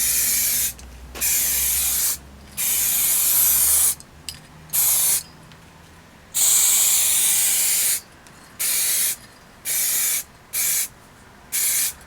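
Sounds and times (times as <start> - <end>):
aerosol spray can hissing: 0.0 - 4.0, 4.8 - 5.2, 6.4 - 8.0, 8.6 - 10.9, 11.6 - 12.0.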